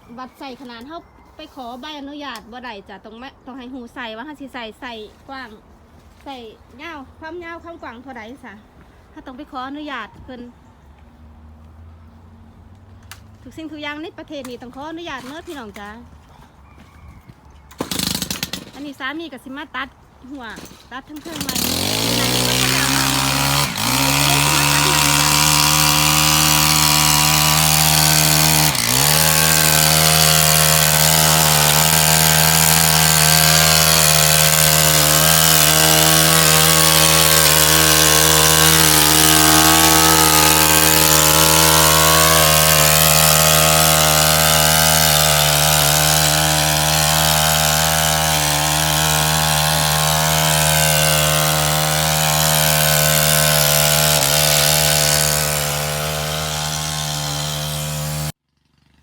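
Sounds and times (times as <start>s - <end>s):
chainsaw cutting wood: 17.7s - 19.0s, 20.5s - 59.0s.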